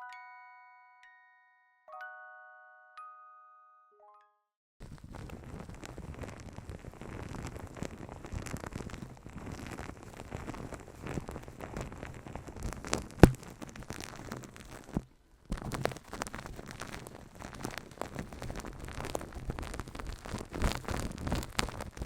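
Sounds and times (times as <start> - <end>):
hands rubbing microphone: 4.8 - 22.0.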